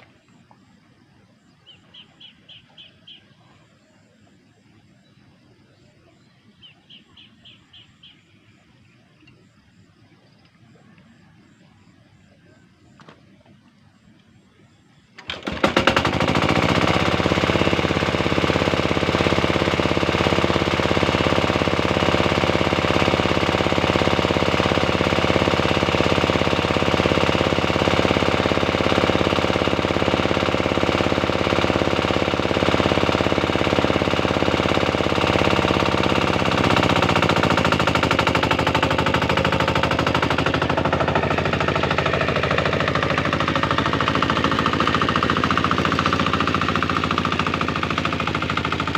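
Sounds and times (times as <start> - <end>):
tractor engine chugging: 15.2 - 48.9.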